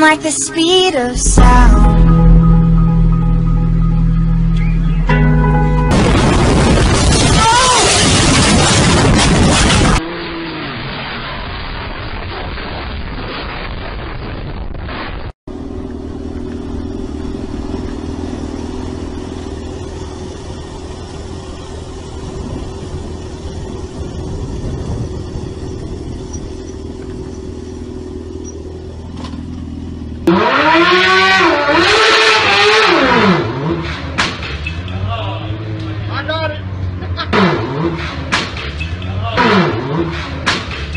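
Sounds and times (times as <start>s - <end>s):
motorcycle engine revving: 15.5s - 40.9s.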